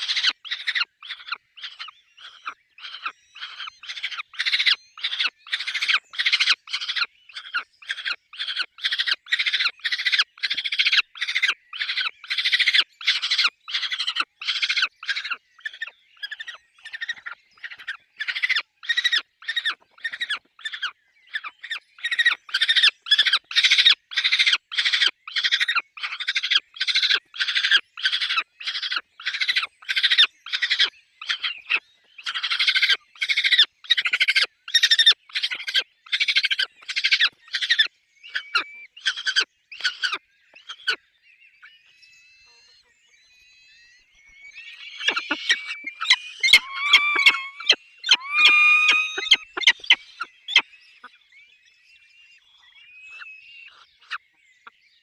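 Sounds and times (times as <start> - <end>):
falcons squealing whining cries: 44.8 - 50.6
falcons harsh rasping calls: 45.0 - 49.9.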